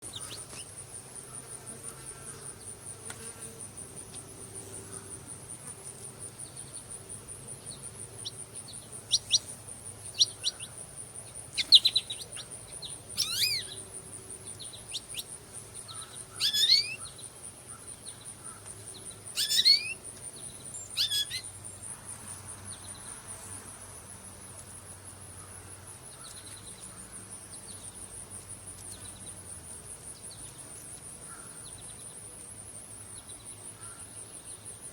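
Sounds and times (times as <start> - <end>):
insects trilling: 0.0 - 34.9
bird sweeping calls: 13.2 - 13.8, 15.9 - 17.0, 19.4 - 20.0, 21.0 - 21.4.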